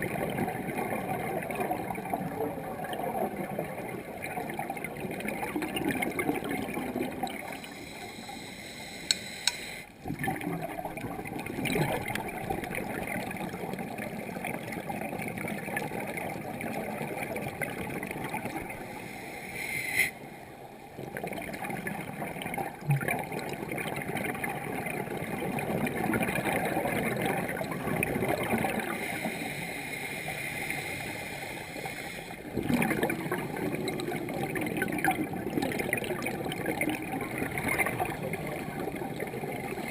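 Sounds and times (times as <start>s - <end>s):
underwater bubbling and gurgling: 0.0s - 39.9s
sharp clicks: 9.1s - 9.7s.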